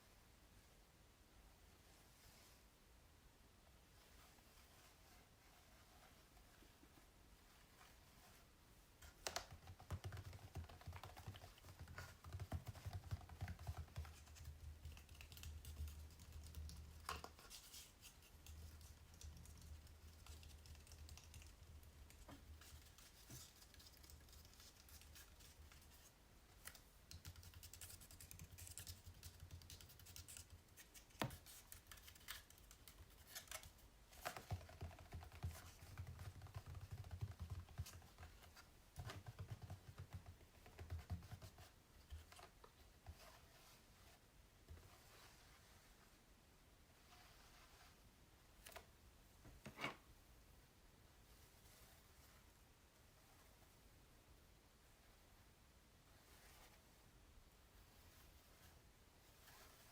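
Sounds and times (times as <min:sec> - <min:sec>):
fingers tapping on canvas: 0:09.2 - 0:15.5, 0:34.3 - 0:38.4.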